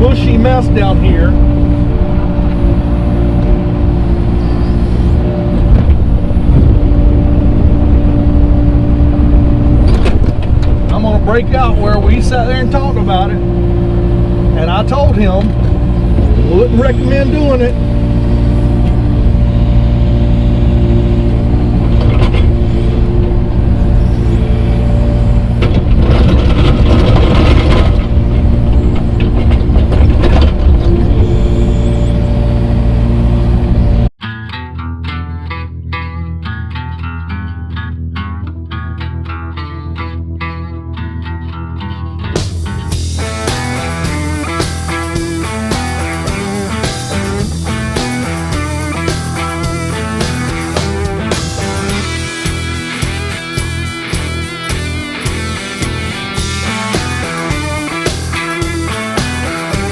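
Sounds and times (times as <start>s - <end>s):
tractor engine running: 0.0s - 34.2s, 42.4s - 59.9s
clattering and scraping: 20.9s - 32.2s.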